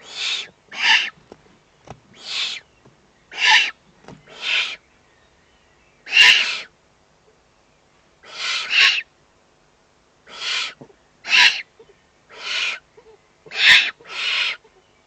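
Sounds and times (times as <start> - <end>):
owl chicks hissing begging calls: 0.0 - 1.2, 2.1 - 4.9, 6.0 - 6.8, 8.2 - 9.1, 10.2 - 14.8.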